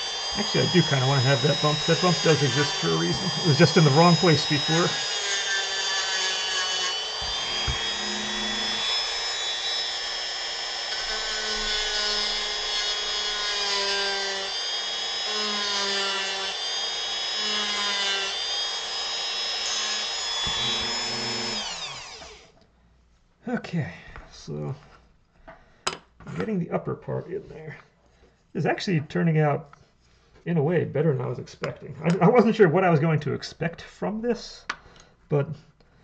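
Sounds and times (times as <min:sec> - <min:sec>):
rotary tool grinding wood: 0:00.0 - 0:22.6.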